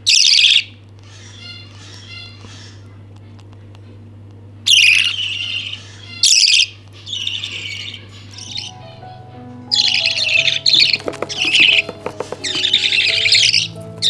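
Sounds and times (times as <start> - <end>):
budgies chirping: 0.0 - 3.6, 4.7 - 8.7, 9.7 - 14.0
music: 8.1 - 14.0.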